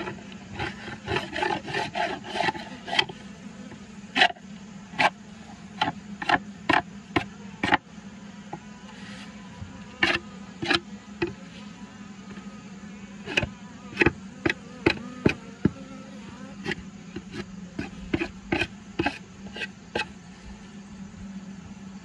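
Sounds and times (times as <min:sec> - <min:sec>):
short scraping strokes: 0:00.0 - 0:06.9, 0:08.9 - 0:12.5, 0:16.2 - 0:20.8
honeybees buzzing: 0:00.0 - 0:22.0.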